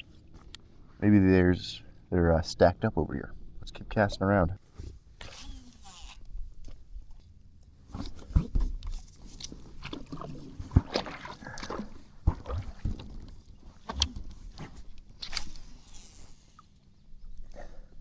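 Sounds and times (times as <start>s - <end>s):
light water movement: 4.6s - 18.0s
dull thumps against kayak: 7.9s - 15.6s
gear clicking and rattling: 13.8s - 16.8s.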